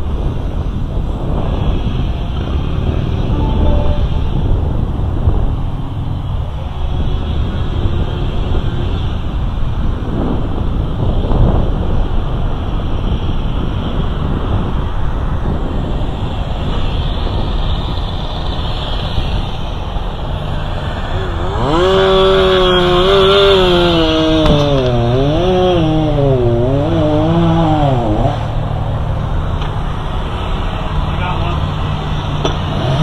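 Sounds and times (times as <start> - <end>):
wind noise rumble: 0.0 - 33.0
chainsaw revving: 18.4 - 28.7, 31.4 - 33.0.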